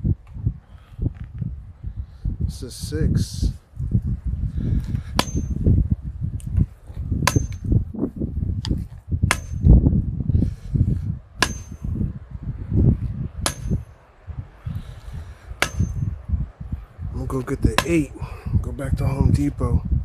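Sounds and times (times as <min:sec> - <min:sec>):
wind buffeting microphone: 0:00.0 - 0:20.0
sledgehammer clanging on metal pipe: 0:05.2 - 0:05.6, 0:07.2 - 0:07.7, 0:09.3 - 0:09.7, 0:11.4 - 0:11.9, 0:13.4 - 0:13.9, 0:15.6 - 0:16.1.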